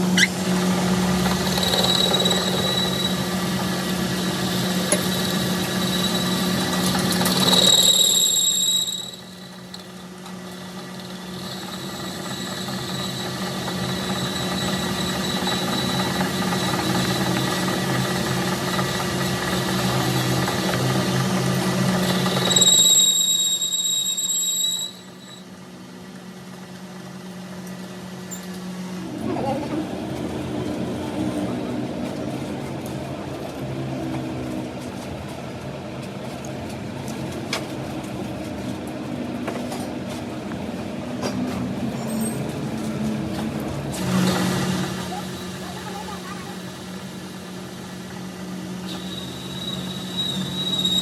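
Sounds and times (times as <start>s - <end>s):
power tool humming and squealing: 0.0s - 25.7s, 41.8s - 43.1s, 43.7s - 51.0s.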